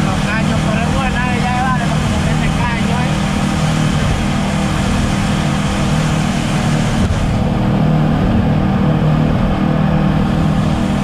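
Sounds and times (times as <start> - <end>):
boat engine running: 0.0 - 11.0
water noise: 0.0 - 11.0
wind: 0.0 - 11.0.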